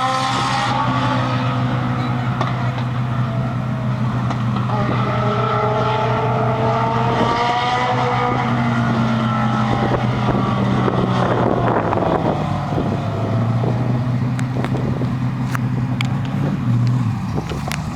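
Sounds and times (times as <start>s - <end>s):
race car engine running: 0.0s - 17.9s.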